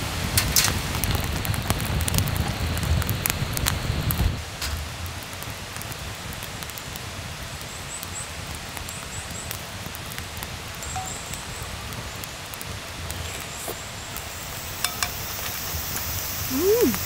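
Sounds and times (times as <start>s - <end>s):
light rain falling: 0.0s - 17.0s.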